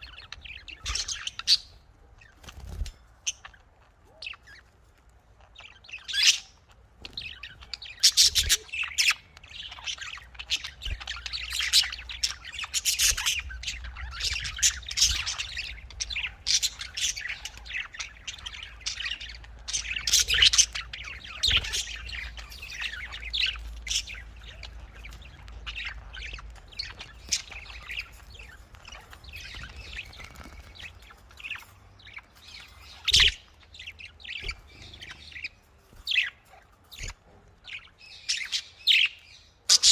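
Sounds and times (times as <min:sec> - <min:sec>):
budgerigars chirping and chattering: 0:00.0 - 0:39.9
parrot squawks: 0:39.6 - 0:39.9.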